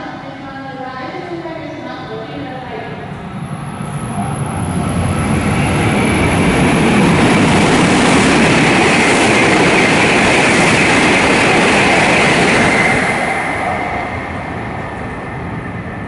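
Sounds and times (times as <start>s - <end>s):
high-speed train passing: 0.0s - 16.0s
train whine: 0.0s - 16.0s.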